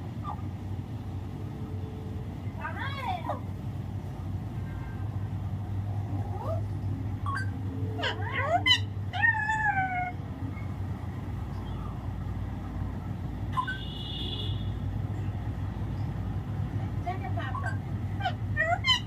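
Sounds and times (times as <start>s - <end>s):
parakeet mimicking cat meow: 7.3s - 10.2s.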